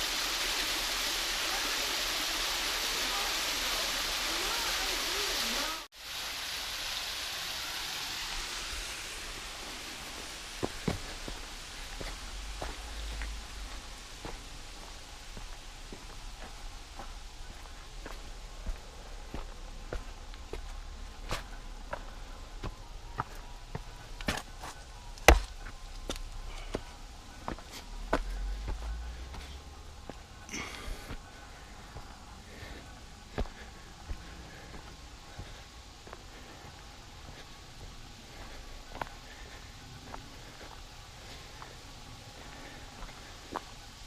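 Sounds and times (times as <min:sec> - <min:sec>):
creek water rushing: 0:00.0 - 0:44.0
footsteps on a trail: 0:09.6 - 0:43.9.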